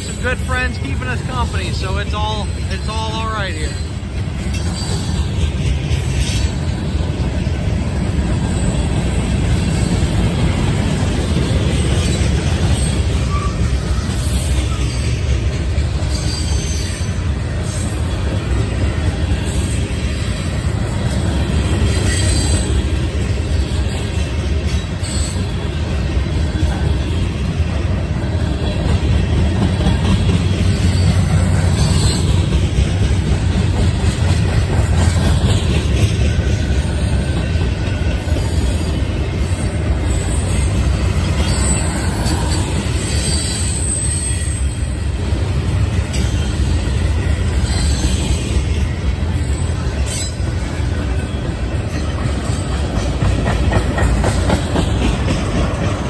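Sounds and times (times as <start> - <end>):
freight train rumbling past: 0.0 - 56.0
high wheel squeal: 39.3 - 45.0, 47.6 - 48.6.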